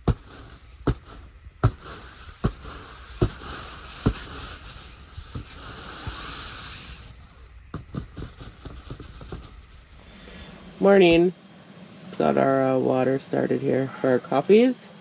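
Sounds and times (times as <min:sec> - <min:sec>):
sharp knocks: 0:00.0 - 0:04.6, 0:07.7 - 0:09.8
rain and snow hissing on tent: 0:00.0 - 0:10.5.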